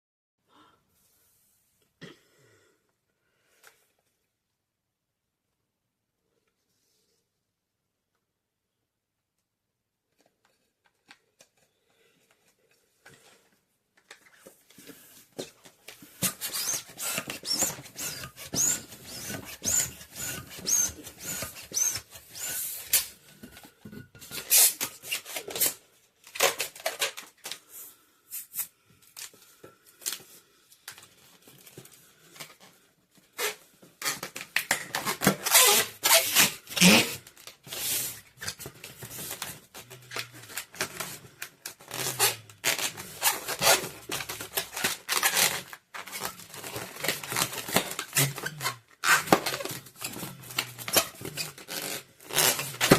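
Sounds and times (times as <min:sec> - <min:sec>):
balloons rubbing and squeaking: 0:14.8 - 0:25.8, 0:33.3 - 0:52.9.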